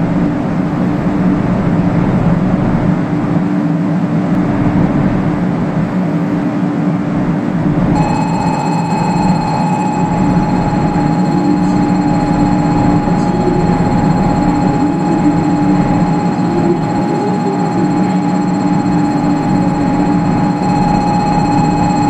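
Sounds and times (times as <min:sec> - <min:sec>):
low hum: 0:00.0 - 0:03.2, 0:07.7 - 0:22.0
steady high tone: 0:08.0 - 0:22.0.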